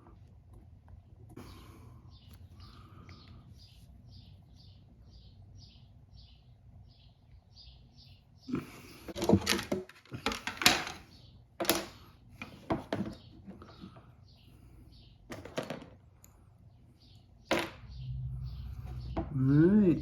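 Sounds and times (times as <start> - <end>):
faint chirping: 16.1 - 20.0.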